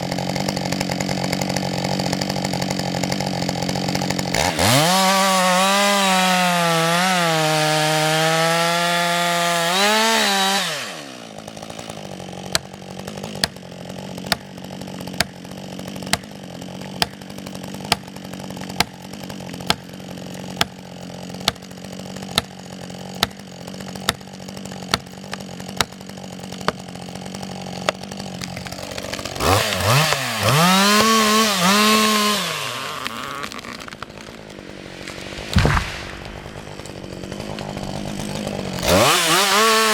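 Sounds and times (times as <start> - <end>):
chainsaw cutting at full throttle: 0.0 - 39.9
chainsaw idling: 0.0 - 39.9.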